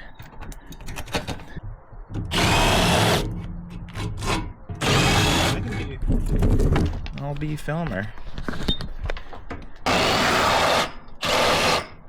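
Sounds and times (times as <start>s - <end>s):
cordless drill spinning: 9.9s - 11.8s.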